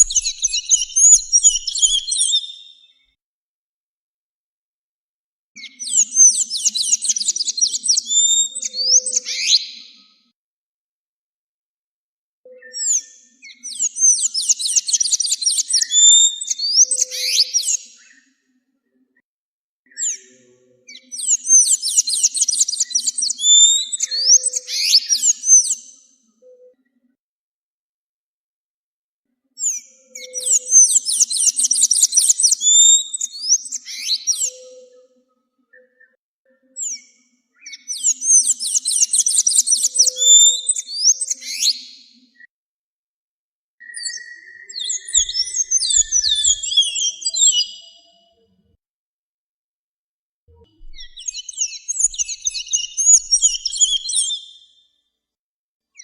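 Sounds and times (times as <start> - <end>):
songbird whistling: 0.0 - 3.0, 12.5 - 17.8, 21.0 - 25.8, 29.7 - 34.8, 37.6 - 42.0, 43.8 - 48.2, 50.8 - 54.6.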